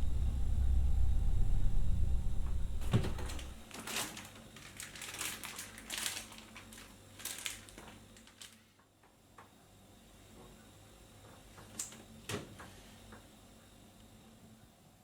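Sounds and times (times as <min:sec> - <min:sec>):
loud low hum: 0:00.0 - 0:03.6
rustling and crinkling: 0:03.0 - 0:08.7.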